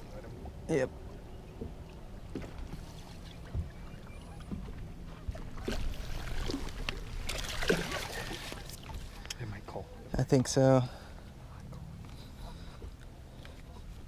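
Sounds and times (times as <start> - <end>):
water lapping against boat hull: 0.0 - 14.0
knocks and clicks on boat: 1.4 - 5.9.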